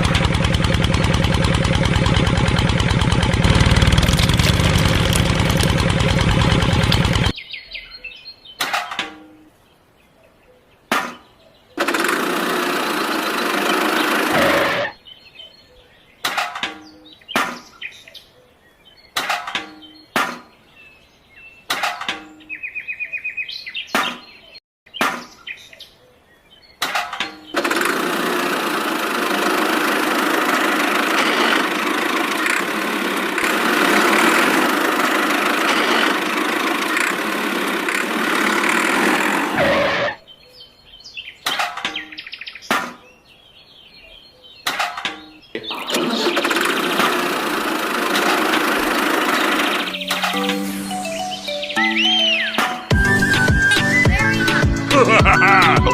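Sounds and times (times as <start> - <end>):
fast ticking: 0.0 - 7.3, 27.6 - 39.6
small motor running: 0.0 - 7.3, 11.8 - 14.9, 27.6 - 40.2, 46.0 - 50.4
short bursts of noise: 11.8 - 14.9, 27.5 - 40.2, 45.8 - 50.9.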